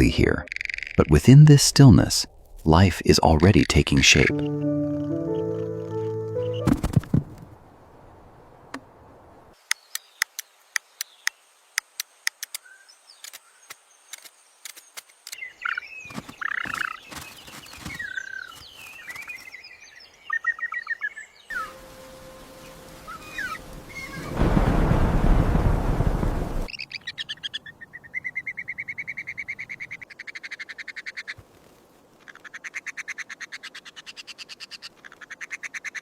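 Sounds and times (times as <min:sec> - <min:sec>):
small birds chirping: 0:09.6 - 0:31.4
faint steady tone: 0:21.5 - 0:24.2.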